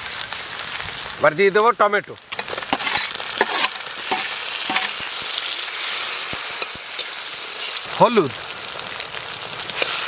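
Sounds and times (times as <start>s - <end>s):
tomatoes sizzling in oil: 0.0s - 10.0s
spatula knocking and scraping pan: 2.4s - 5.0s.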